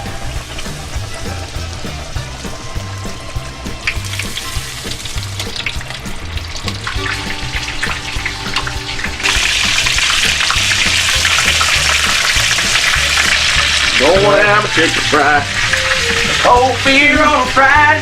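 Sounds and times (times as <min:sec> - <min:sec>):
country music with bass beat: 0:00.0 - 0:18.0
food sizzling in hot oil: 0:00.0 - 0:18.0.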